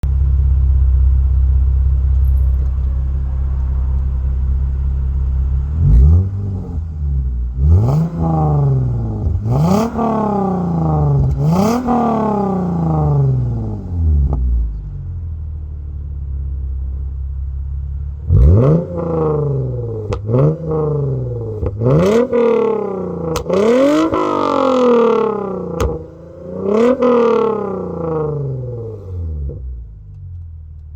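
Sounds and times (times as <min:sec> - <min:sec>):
car engine idling and revving: 0:00.0 - 0:30.9.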